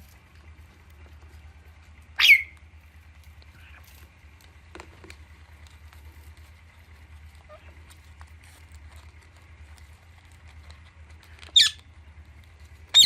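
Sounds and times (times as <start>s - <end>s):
steady low hum: 0.0s - 13.0s
parrot screeching: 2.2s - 2.6s, 11.5s - 11.9s.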